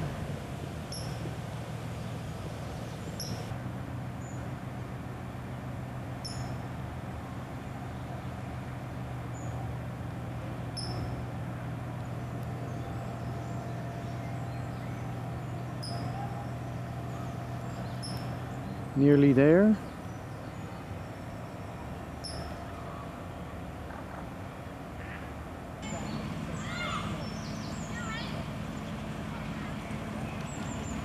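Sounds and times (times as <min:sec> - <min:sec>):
high bird chirp: 0:03.0 - 0:03.5, 0:12.6 - 0:19.0, 0:19.8 - 0:22.6, 0:26.0 - 0:28.4.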